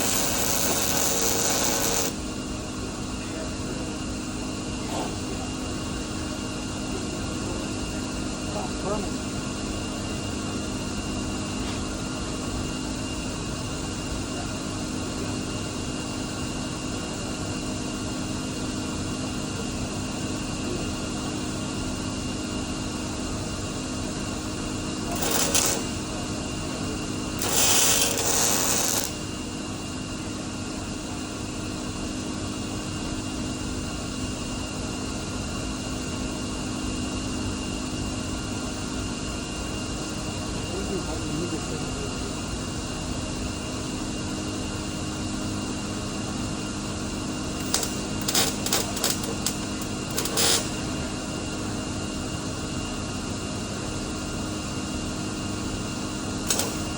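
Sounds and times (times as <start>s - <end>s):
welding arc crackle: 0.0s - 2.2s, 25.1s - 26.1s, 27.4s - 29.3s, 47.6s - 51.0s, 56.5s - 56.9s
shop machine hum: 0.0s - 2.4s, 25.0s - 29.6s, 47.5s - 51.5s, 56.4s - 56.9s.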